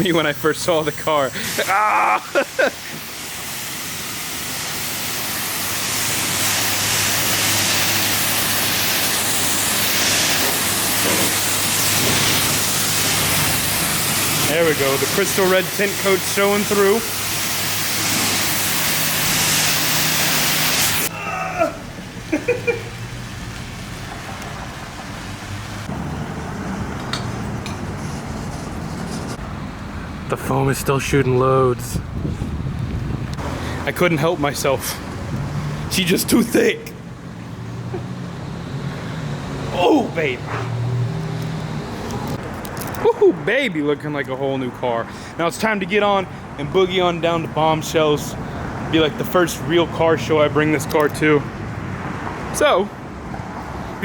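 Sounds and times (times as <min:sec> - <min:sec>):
pressure washer spraying water: 0:00.0 - 0:21.1, 0:21.8 - 0:29.4.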